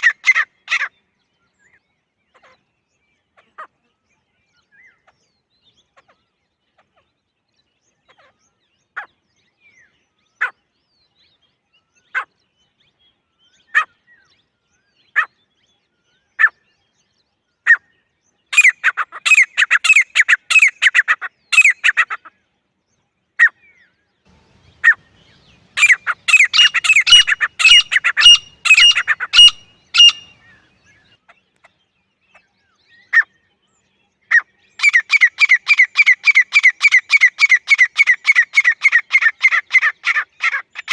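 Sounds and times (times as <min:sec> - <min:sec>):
francolin calling: 0:18.6 - 0:22.2, 0:24.3 - 0:30.8, 0:34.3 - 0:40.9.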